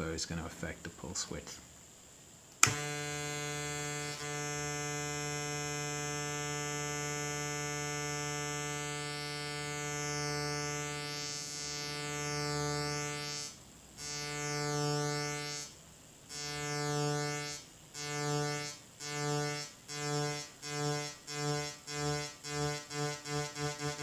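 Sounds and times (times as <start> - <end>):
synthesizer low pulsing note: 2.7 - 15.7, 16.3 - 24.0.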